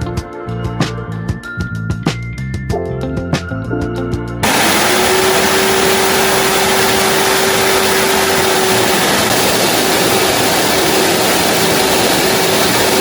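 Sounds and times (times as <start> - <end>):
vacuum cleaner air rush: 4.4 - 13.0
vacuum motor hum: 4.4 - 13.0.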